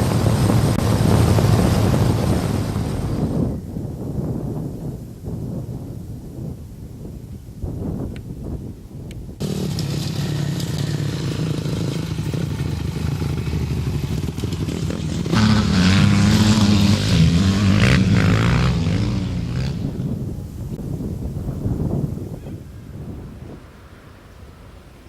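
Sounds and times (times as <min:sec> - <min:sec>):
motorcycle engine running: 0:09.4 - 0:20.5.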